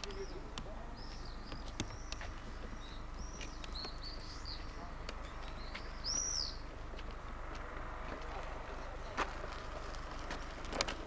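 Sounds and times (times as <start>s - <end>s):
small birds chirping: 0.0s - 7.3s, 8.2s - 11.0s
sharp clicks: 1.4s - 2.3s.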